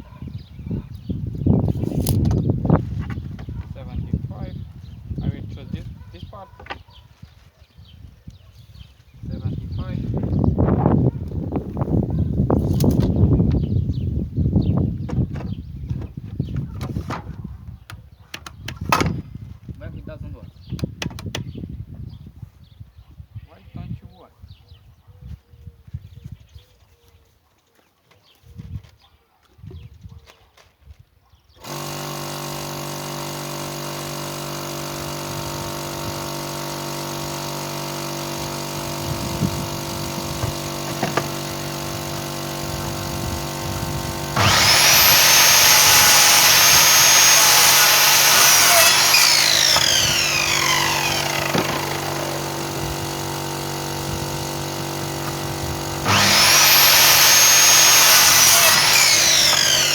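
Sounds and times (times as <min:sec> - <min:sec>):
electric power saw whining: 0:31.6 - 0:59.9.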